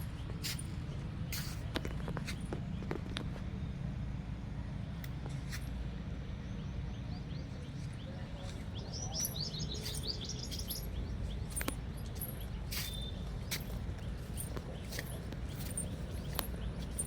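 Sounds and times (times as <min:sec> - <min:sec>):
steady low rumble: 0:00.0 - 0:17.0
bird chirping: 0:06.6 - 0:17.0.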